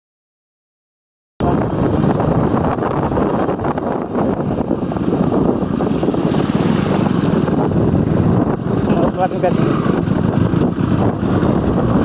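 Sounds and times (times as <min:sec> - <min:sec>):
wind buffeting microphone: 0:01.4 - 0:12.0.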